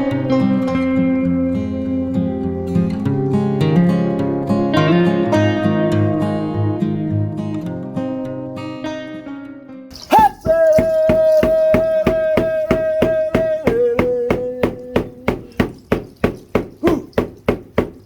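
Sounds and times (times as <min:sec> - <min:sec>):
sharp rhythmic strikes: 0:09.9 - 0:18.0.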